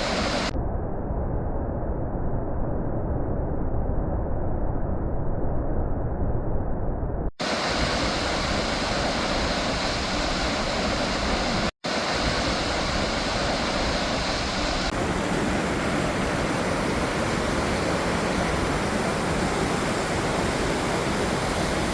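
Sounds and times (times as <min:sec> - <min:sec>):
waterfall roaring: 0:00.0 - 0:00.5, 0:07.4 - 0:21.9.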